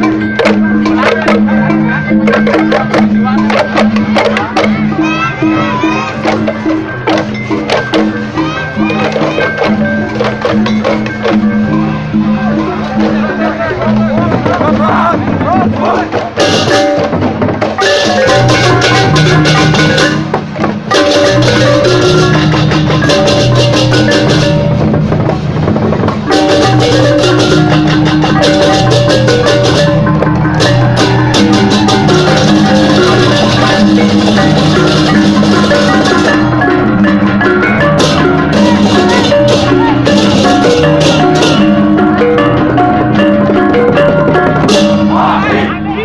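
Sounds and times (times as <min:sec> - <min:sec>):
bronze gongs and metallophones: 0:00.0 - 0:46.0
drums: 0:00.0 - 0:46.0
hand cymbals clashing: 0:17.8 - 0:25.2, 0:26.3 - 0:45.2.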